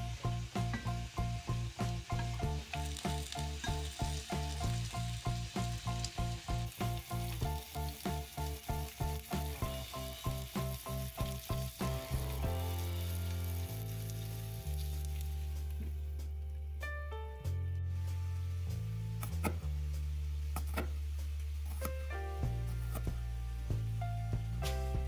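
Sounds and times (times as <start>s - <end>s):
background music with beat: 0.0s - 12.9s, 22.2s - 25.0s
potatoes sizzling in a pan: 0.0s - 16.2s, 17.8s - 25.0s.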